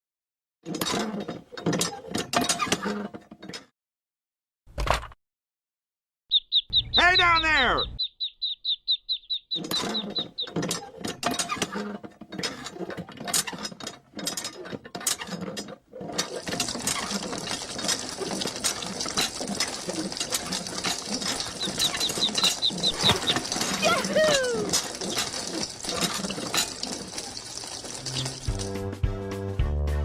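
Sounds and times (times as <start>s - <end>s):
rapid high chirp: 6.3s - 9.6s.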